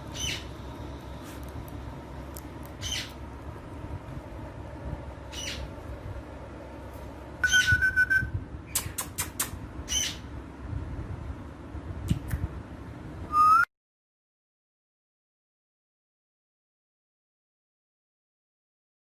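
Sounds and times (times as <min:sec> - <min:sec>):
parakeet squawking and calling: 0:00.0 - 0:00.5, 0:02.7 - 0:03.2, 0:05.3 - 0:05.7, 0:07.4 - 0:08.2, 0:09.8 - 0:10.3.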